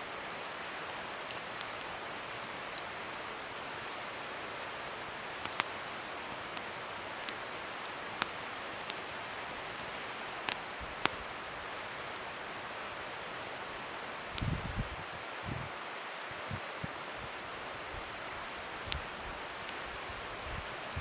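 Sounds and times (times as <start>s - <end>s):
wood fire crackling: 0.0s - 21.0s
sharp pops of fire: 5.3s - 5.8s, 6.4s - 11.4s.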